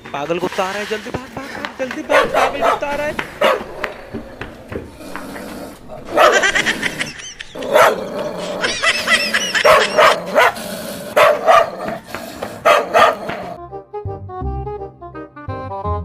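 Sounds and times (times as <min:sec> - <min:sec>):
dog barking: 0:02.1 - 0:04.2, 0:06.0 - 0:06.7, 0:07.6 - 0:08.1, 0:09.4 - 0:12.0, 0:12.6 - 0:13.6
dog yelping and whining: 0:06.0 - 0:10.6.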